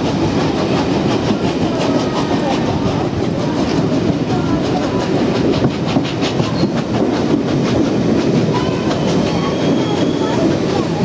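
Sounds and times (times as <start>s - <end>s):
train rumbling along track: 0.0s - 11.0s
wheels clacking over rail joints: 0.0s - 11.0s
wheels squealing on rail: 5.8s - 7.2s, 8.4s - 11.0s.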